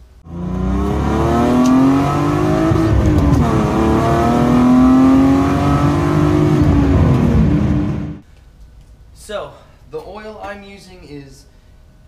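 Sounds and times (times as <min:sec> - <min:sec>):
car engine accelerating: 0:00.2 - 0:08.2.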